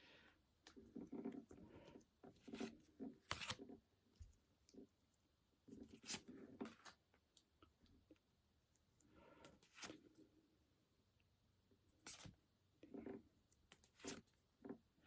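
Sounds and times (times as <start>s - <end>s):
cards and wrapping rustling: 2.3s - 3.7s, 9.5s - 10.0s.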